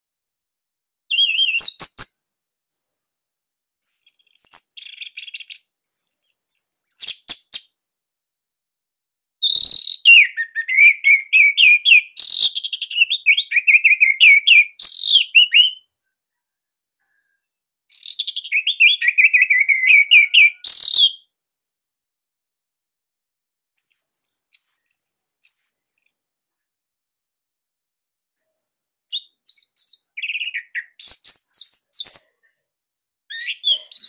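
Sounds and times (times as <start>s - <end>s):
bird singing whistled trills: 1.1s - 2.2s, 3.8s - 7.7s, 9.4s - 15.9s, 17.9s - 21.3s, 23.8s - 26.2s, 28.4s - 32.3s, 33.3s - 34.0s.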